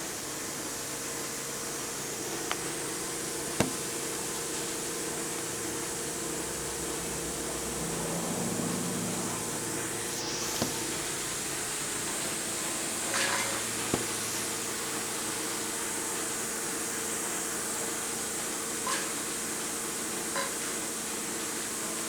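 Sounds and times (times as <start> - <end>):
machinery hissing and humming: 0.0 - 22.0
sharp knock: 3.6 - 4.0, 10.6 - 11.0, 13.9 - 14.4.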